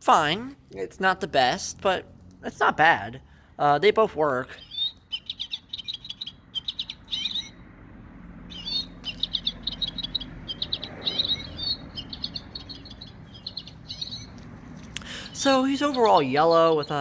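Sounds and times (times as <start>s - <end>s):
toy playing recorded birdsong: 3.6s - 7.7s, 8.3s - 17.0s.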